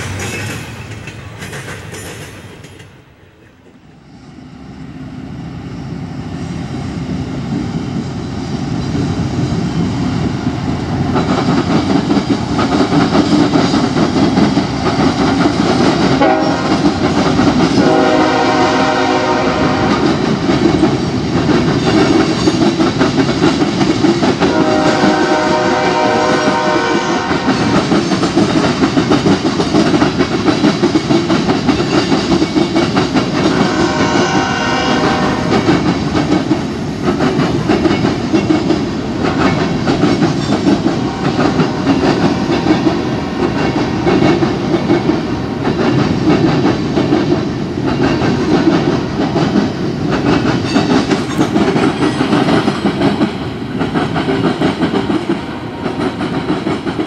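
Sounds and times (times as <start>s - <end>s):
diesel locomotive engine: 0.0s - 57.0s
train horn blasts: 16.2s - 16.9s, 17.7s - 20.2s, 24.4s - 27.8s, 33.5s - 35.8s.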